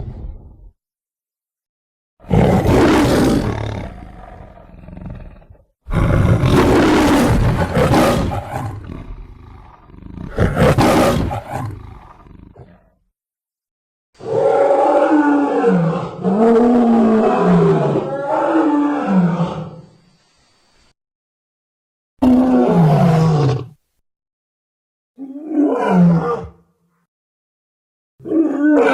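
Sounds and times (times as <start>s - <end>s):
lion roaring: 2.2s - 12.9s, 14.2s - 19.9s, 22.2s - 23.8s, 25.2s - 26.6s, 28.2s - 28.9s.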